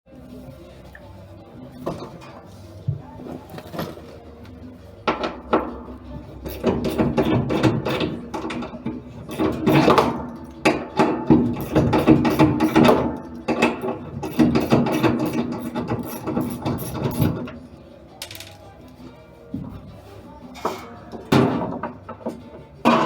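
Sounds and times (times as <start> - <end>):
mechanical knocks and clicks: 6.4 - 17.5.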